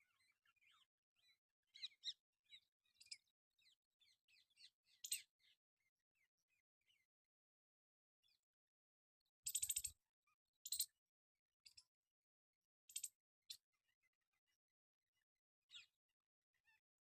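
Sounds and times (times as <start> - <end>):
faint bird twittering: 0.0 - 5.6, 9.4 - 10.0, 10.6 - 11.0, 12.9 - 13.6.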